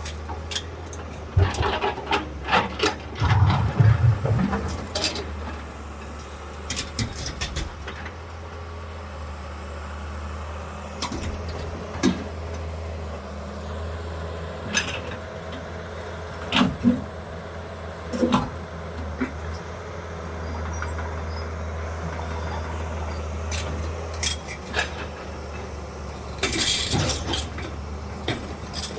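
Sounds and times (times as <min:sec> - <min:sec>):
diesel engine running: 0:00.0 - 0:28.9
debris and metal clanking: 0:00.1 - 0:05.7, 0:23.0 - 0:28.9.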